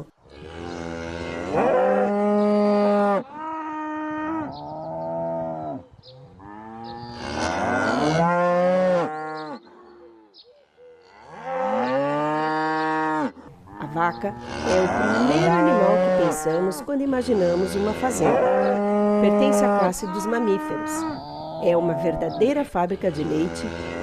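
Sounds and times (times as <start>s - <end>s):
cattle mooing: 0.0s - 24.0s.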